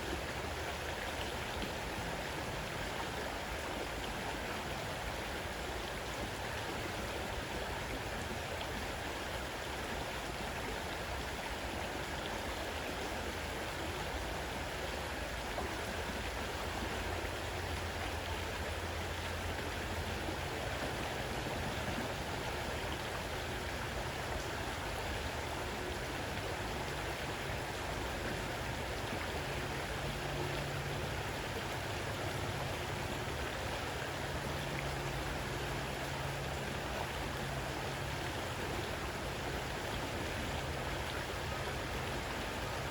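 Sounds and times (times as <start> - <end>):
river rushing: 0.0 - 42.9.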